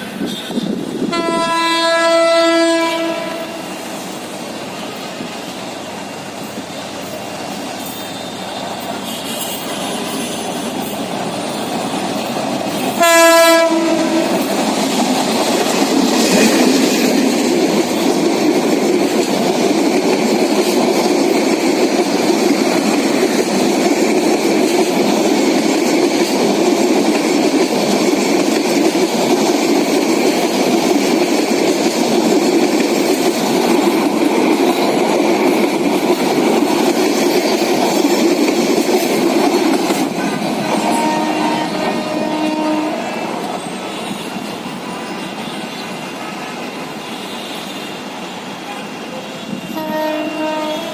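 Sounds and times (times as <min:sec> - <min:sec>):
train rumbling by: 0:00.0 - 0:50.9
train horn blast: 0:00.3 - 0:03.7, 0:12.9 - 0:14.5, 0:40.6 - 0:43.3, 0:48.6 - 0:50.9
wheels clattering on rails: 0:03.5 - 0:47.7.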